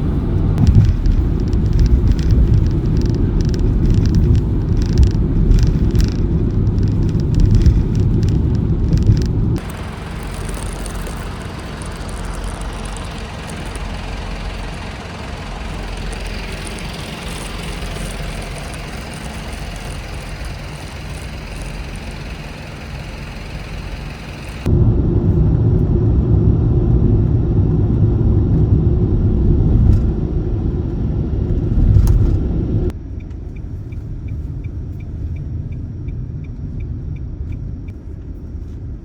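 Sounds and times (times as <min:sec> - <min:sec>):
tyre and traffic noise: 0:00.0 - 0:24.8
car road noise rumble: 0:00.0 - 0:39.0.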